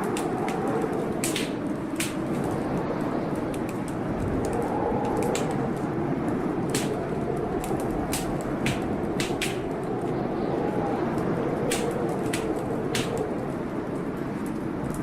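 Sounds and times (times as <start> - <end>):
blizzard wind rushing: 0.0 - 15.0
wood fire crackling: 0.0 - 15.0
sharp pops of fire: 0.1 - 2.5, 6.6 - 9.9, 11.7 - 13.4.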